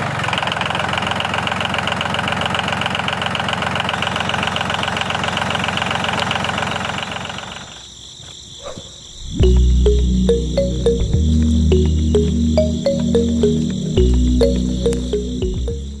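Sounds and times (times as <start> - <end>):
music: 9.4 - 16.0.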